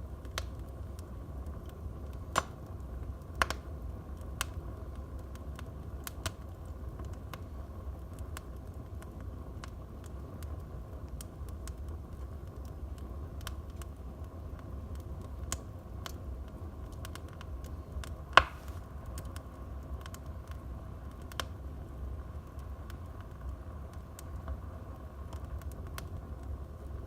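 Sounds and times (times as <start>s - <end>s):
wood fire crackling: 0.0s - 27.0s
loud pop from fire: 18.3s - 18.9s.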